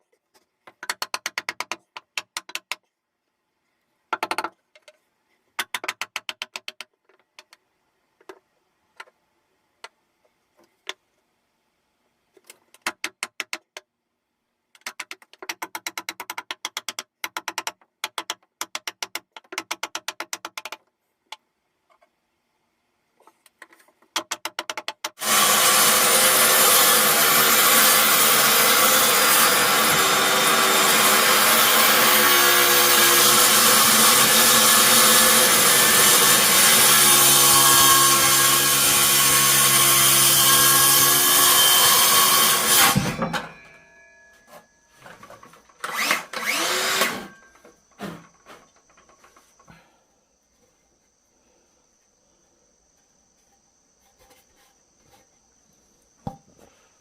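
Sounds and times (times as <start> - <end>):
electric power tool motor: 45.8 - 47.4.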